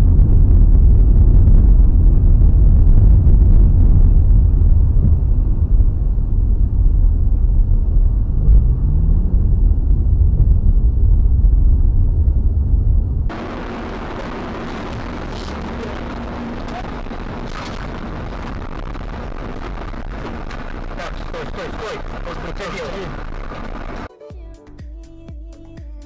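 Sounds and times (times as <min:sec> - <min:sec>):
moving vehicle rumble: 0:00.0 - 0:24.1.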